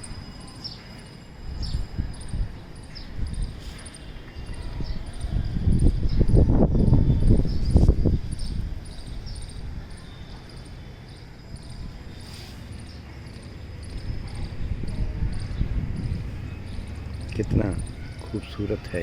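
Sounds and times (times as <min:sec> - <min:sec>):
cricket chirping: 0:00.0 - 0:18.8
loud low rumbling: 0:11.4 - 0:18.3.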